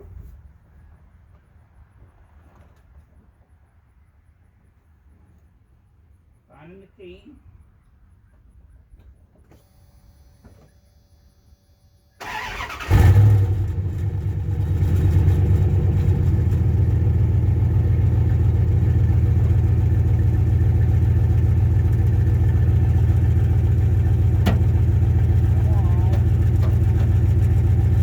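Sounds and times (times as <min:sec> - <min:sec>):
engine cranked by starter: 0:12.2 - 0:28.0
engine idling: 0:12.2 - 0:28.0.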